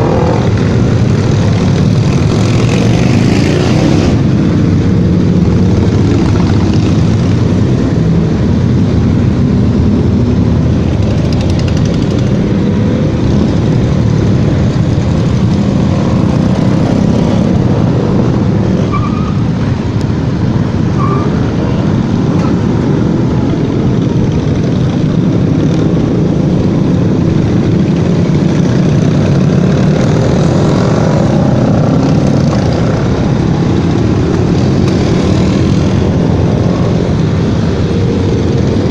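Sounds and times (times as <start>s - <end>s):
motorcycle engines rumbling: 0.0s - 38.9s.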